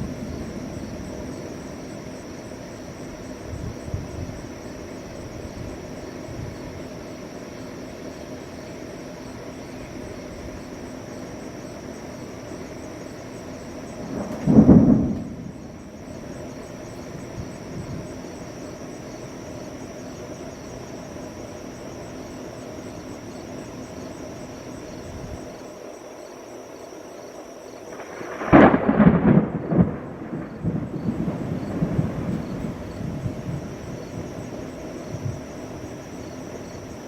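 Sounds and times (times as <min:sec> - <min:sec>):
thunderclap rolling rumble: 0:00.0 - 0:07.0, 0:13.6 - 0:19.4, 0:27.8 - 0:37.0
storm hiss: 0:00.0 - 0:37.0.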